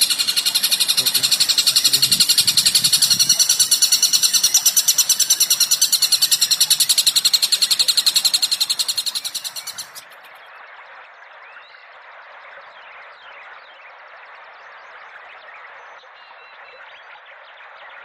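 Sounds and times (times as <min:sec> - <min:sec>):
songbird chirping rapidly: 0:00.0 - 0:10.4.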